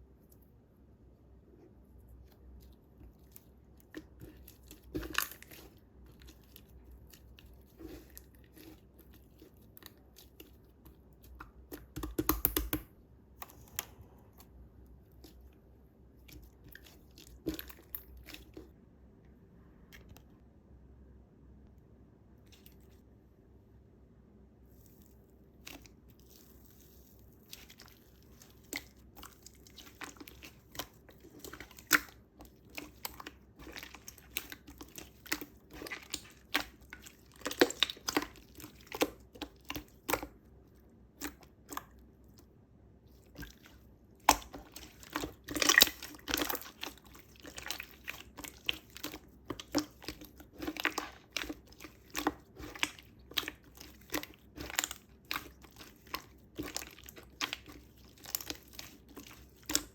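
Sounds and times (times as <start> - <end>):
slime squished by hand: 24.7 - 59.9
wet pops and crackles: 44.2 - 59.9.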